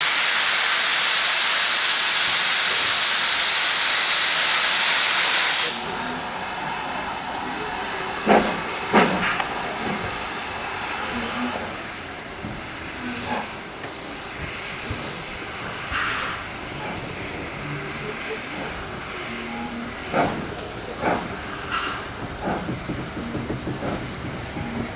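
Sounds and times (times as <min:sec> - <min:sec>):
steam locomotive hissing steam: 0:00.0 - 0:24.9
sharp knocks: 0:20.1 - 0:24.9.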